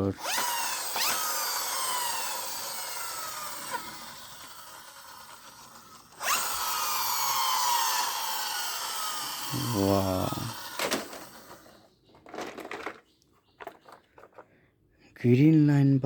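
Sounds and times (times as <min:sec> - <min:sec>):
toy helicopter whirring: 0:00.0 - 0:13.0.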